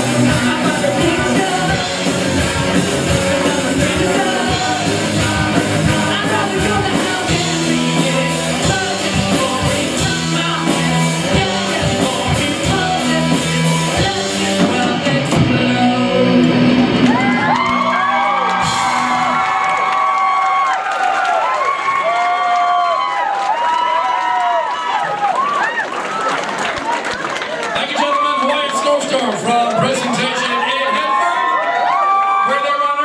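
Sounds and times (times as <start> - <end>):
person singing: 0.0 - 19.5
electric guitars: 0.0 - 19.9
bass: 0.0 - 20.1
drums: 0.0 - 28.1.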